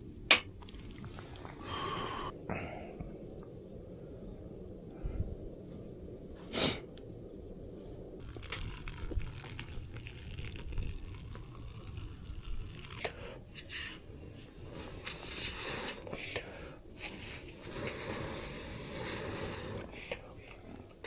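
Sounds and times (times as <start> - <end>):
low rumble: 0.0 - 21.0
plastic packet crinkling and tearing: 8.2 - 13.1.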